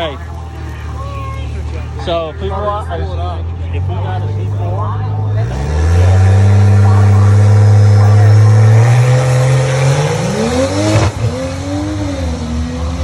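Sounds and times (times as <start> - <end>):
racing car engine accelerating: 3.8 - 13.0.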